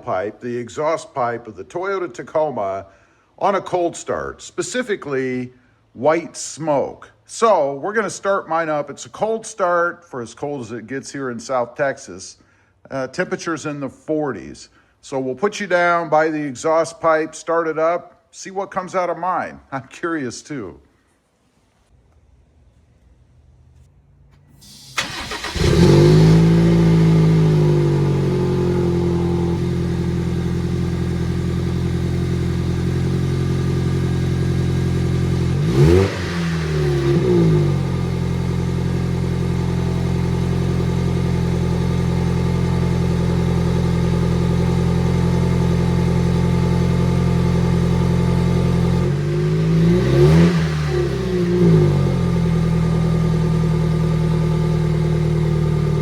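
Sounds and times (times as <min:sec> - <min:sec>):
engine cold start and fast idle: 0:24.6 - 0:28.1.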